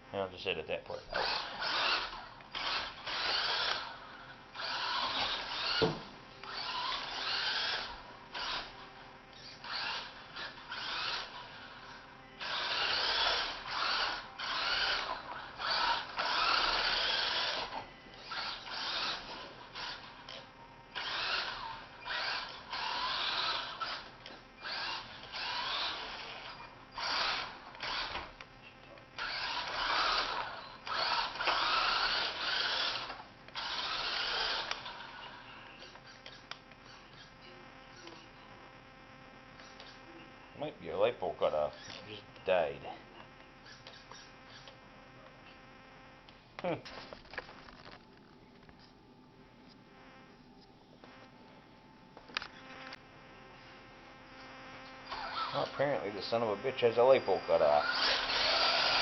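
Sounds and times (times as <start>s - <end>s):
electric motor whining in bursts: 1.0s - 28.5s, 29.1s - 40.3s, 54.2s - 59.0s.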